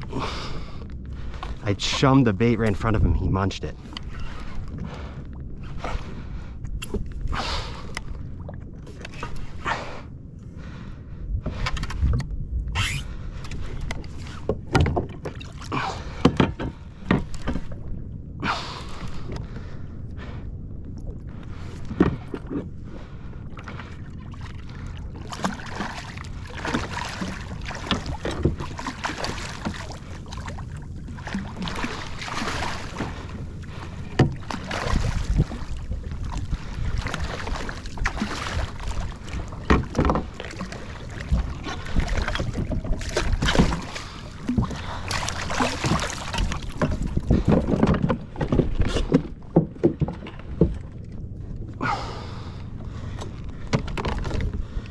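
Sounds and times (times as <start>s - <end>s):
water splashing against kayak hull: 0.0s - 54.9s
wind on microphone: 11.1s - 14.9s, 27.2s - 49.2s.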